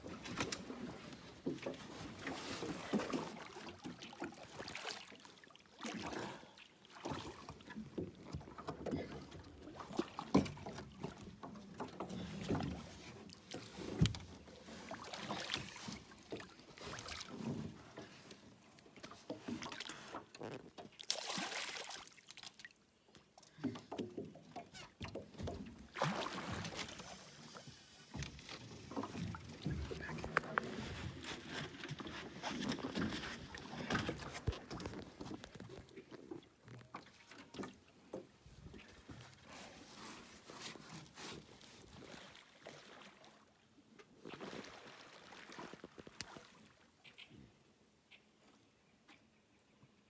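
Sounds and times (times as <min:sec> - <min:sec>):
water splashing: 0:21.0 - 0:22.7, 0:25.9 - 0:27.6, 0:44.3 - 0:46.8.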